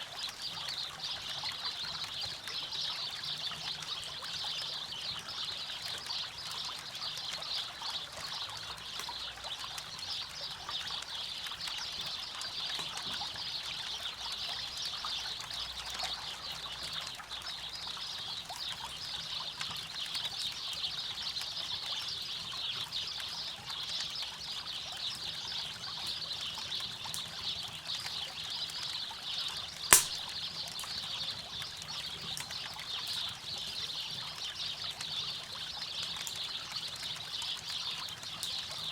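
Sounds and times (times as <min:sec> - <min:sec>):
campfire crackling: 0:29.9 - 0:30.2
sharp loud pop: 0:29.9 - 0:30.2.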